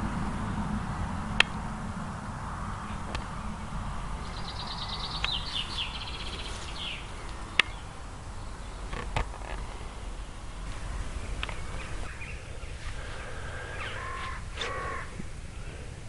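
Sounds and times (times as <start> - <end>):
low outdoor rumble: 0.0 - 16.0
sharp clicks: 1.4 - 1.6, 5.2 - 5.5, 7.2 - 7.8, 11.4 - 11.6
small bird trilling: 11.5 - 15.2.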